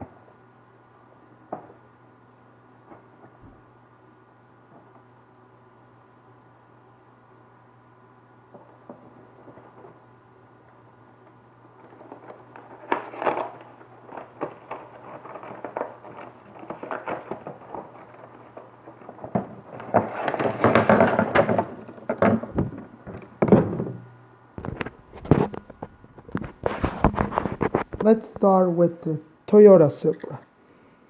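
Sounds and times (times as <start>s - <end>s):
packaging rustling and tearing: 11.7s - 22.0s, 24.6s - 28.1s
blister packaging clicking and cracking: 11.8s - 20.0s.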